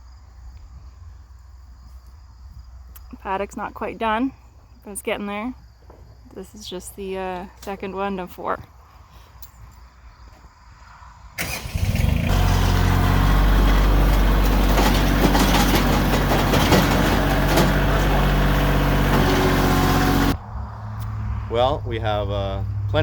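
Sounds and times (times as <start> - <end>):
tractor diesel engine running: 11.4 - 20.4.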